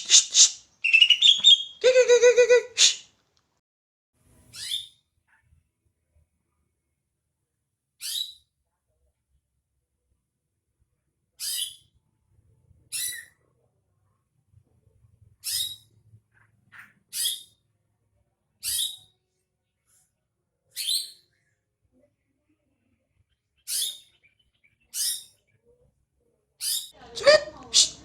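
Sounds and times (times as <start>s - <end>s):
bird giving harsh high calls: 0.0s - 3.0s, 27.2s - 28.0s.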